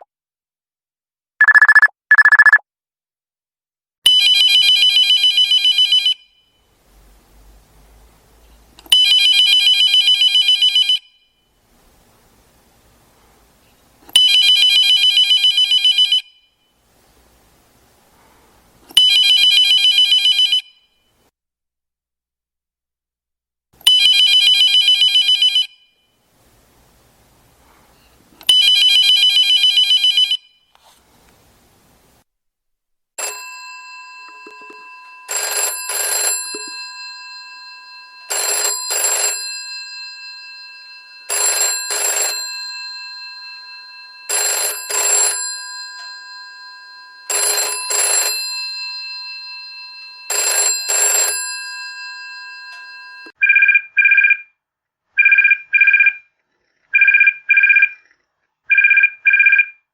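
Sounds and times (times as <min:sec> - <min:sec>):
electronic double-beep rings: 0:01.4 - 0:02.6
bell telephone double rings: 0:33.2 - 0:53.4
buzzing telephone ring: 0:33.2 - 0:53.4.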